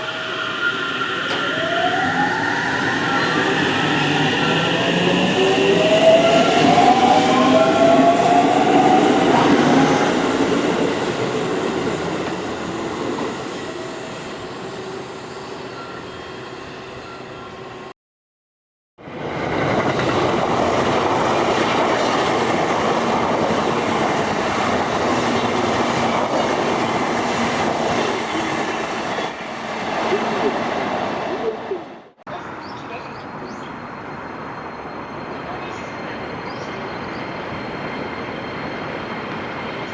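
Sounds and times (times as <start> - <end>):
electric train motor whine: 0.0 - 10.6
train running on rails: 0.0 - 17.9, 19.0 - 39.9.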